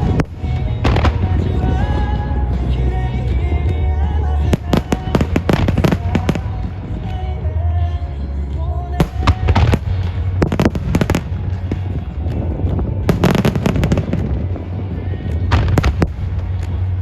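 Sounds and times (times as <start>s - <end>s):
firework shells bursting: 13.1s - 14.6s.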